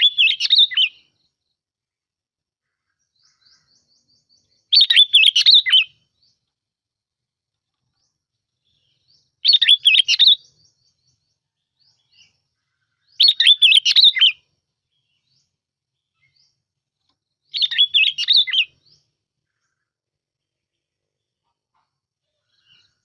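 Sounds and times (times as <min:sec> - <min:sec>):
bulbul song: 0:00.0 - 0:01.4, 0:03.2 - 0:06.5, 0:08.1 - 0:12.4, 0:13.0 - 0:16.6, 0:17.4 - 0:19.8.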